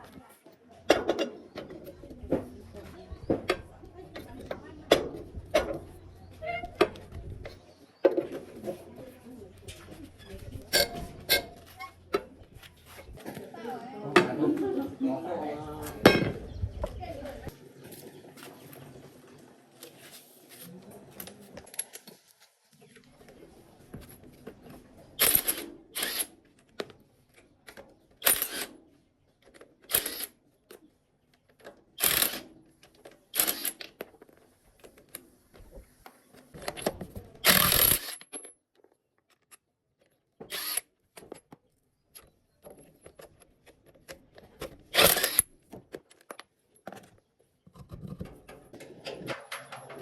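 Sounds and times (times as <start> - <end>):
hand tools clanking and scraping: 0.0 - 13.5, 42.6 - 50.0.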